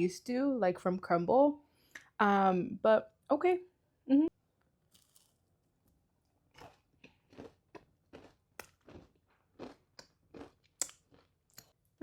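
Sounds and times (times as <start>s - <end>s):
crunching and chewing cookie: 4.9s - 5.5s, 6.4s - 12.0s.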